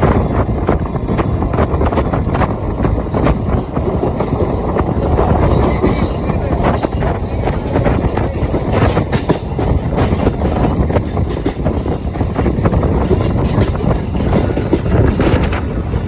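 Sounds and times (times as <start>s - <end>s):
train rumbling on rails: 0.0s - 16.0s
wheels clattering over rail joints: 1.1s - 16.0s
faint high wheel squeal: 4.2s - 9.0s.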